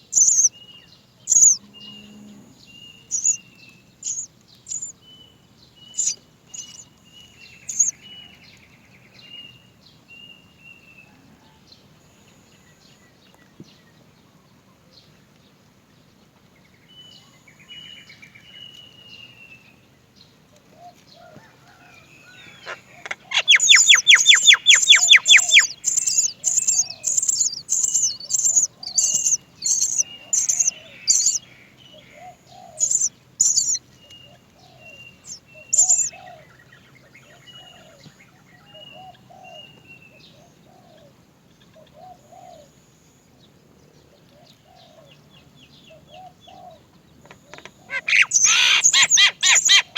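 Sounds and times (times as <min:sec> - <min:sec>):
faint bird calls: 0:00.0 - 0:00.5, 0:01.3 - 0:03.4, 0:04.0 - 0:04.9, 0:05.9 - 0:06.9, 0:07.6 - 0:08.2, 0:20.6 - 0:42.8, 0:45.9 - 0:49.9
chicks begging cries: 0:00.1 - 0:00.5, 0:01.3 - 0:01.6, 0:03.1 - 0:03.4, 0:04.0 - 0:04.9, 0:06.0 - 0:06.8, 0:07.7 - 0:07.9, 0:22.4 - 0:33.8, 0:35.1 - 0:36.4, 0:47.6 - 0:49.9.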